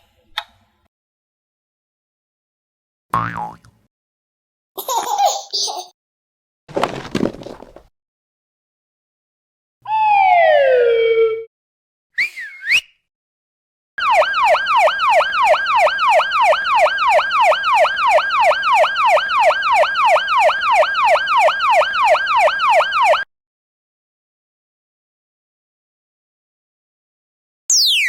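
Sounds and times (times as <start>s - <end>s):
siren yelp: 9.8s - 11.5s, 14.0s - 23.3s.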